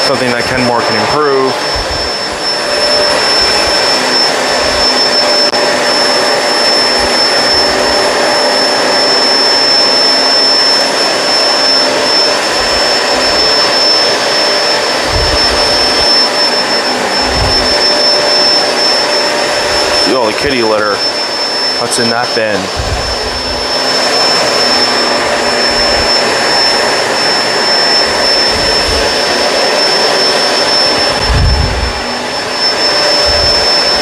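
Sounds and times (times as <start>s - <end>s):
vacuum cleaner running on carpet: 0.0s - 34.0s
low bumps: 15.0s - 16.1s, 17.1s - 17.8s, 22.7s - 23.7s, 31.1s - 32.0s.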